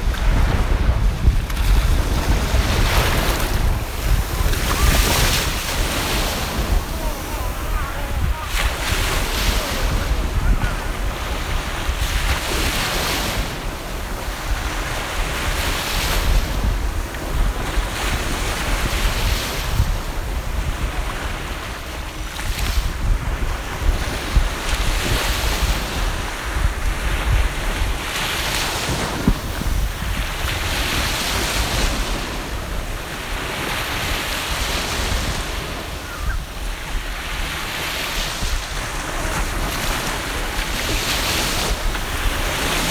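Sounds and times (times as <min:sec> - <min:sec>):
waves breaking: 0:00.0 - 0:42.9
wind buffeting microphone: 0:00.0 - 0:42.9.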